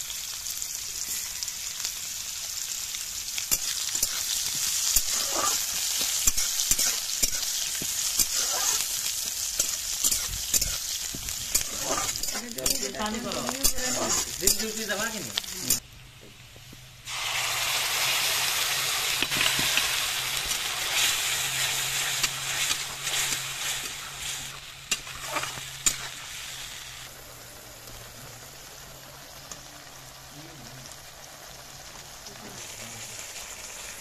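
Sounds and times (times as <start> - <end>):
loud sizzle of spice paste: 0.0 - 34.0
onions frying in oil: 0.0 - 34.0
metal spatula scraping pan: 3.6 - 7.5, 8.1 - 10.9, 11.5 - 14.9, 19.3 - 26.6.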